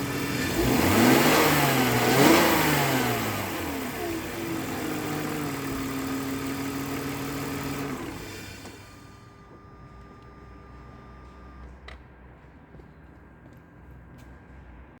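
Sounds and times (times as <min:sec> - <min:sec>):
car engine revving from idle: 0:00.0 - 0:09.3.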